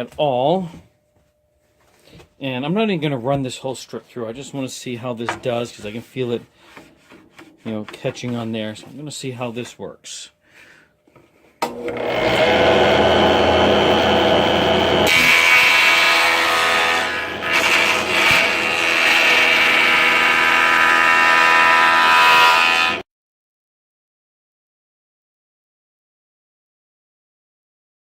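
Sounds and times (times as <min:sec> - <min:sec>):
electric wood planer running: 0:11.6 - 0:23.0.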